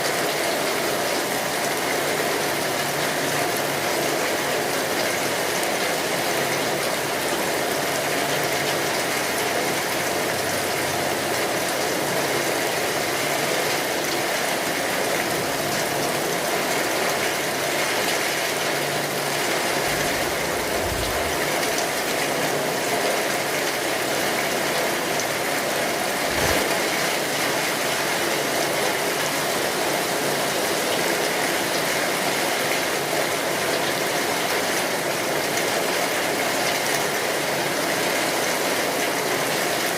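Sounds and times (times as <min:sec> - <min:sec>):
steady rain patter: 0:00.0 - 0:39.9
brief low thuds: 0:20.0 - 0:21.5.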